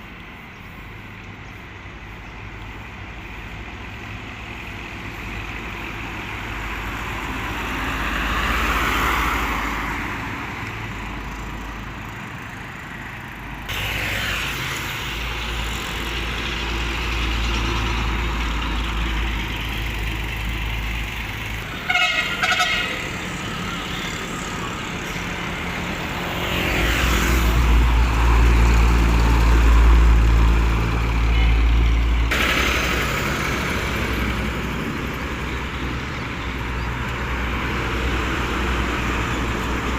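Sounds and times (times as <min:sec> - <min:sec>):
heavy vehicles passing: 0:00.0 - 0:39.9
vehicle horn: 0:21.8 - 0:23.2.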